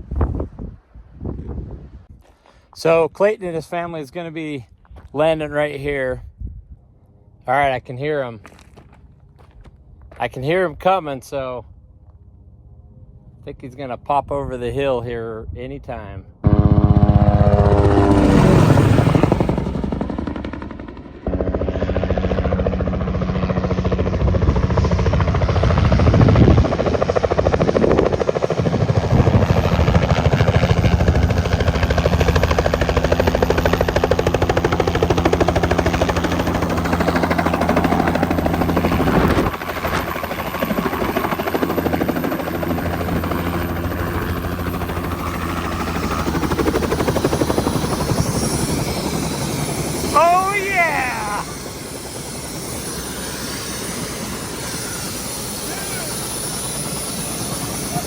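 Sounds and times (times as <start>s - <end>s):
helicopter rotor chopping: 16.4s - 58.0s.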